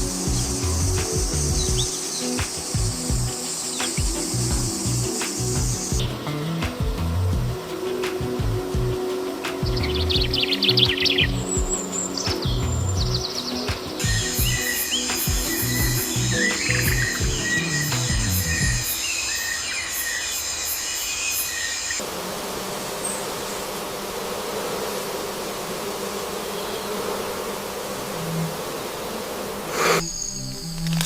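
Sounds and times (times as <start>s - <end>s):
music: 0.0s - 19.0s, 29.8s - 31.0s
birds chirping: 0.0s - 22.0s
insects buzzing drone: 0.0s - 31.0s.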